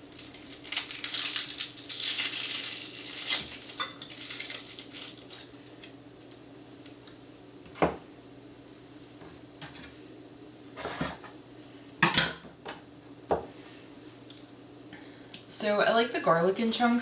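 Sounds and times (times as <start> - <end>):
onion skin crackling: 0.0 - 6.9
knock on cutting board: 7.8 - 8.0, 13.3 - 13.5.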